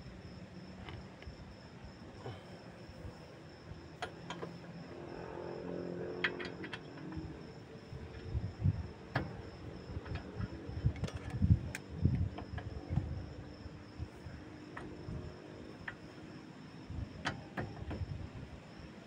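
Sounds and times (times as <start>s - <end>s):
faint hum: 0.0s - 19.0s
dull knocks of tools: 6.2s - 7.3s, 17.2s - 18.2s.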